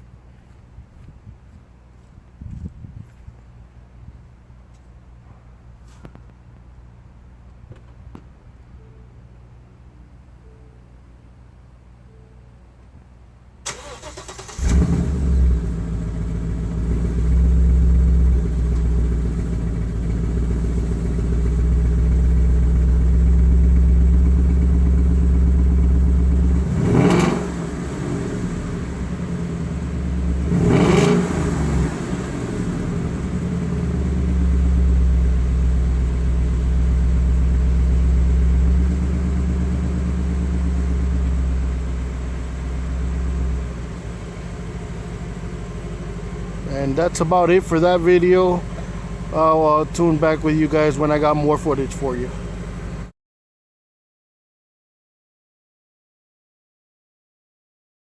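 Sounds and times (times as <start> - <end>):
car engine starting and idling: 13.6 - 53.1
engine throttle blips: 13.6 - 53.1.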